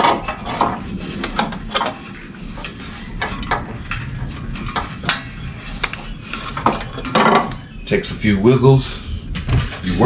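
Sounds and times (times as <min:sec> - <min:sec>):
light metal clicks and knocks: 0:04.6 - 0:07.6.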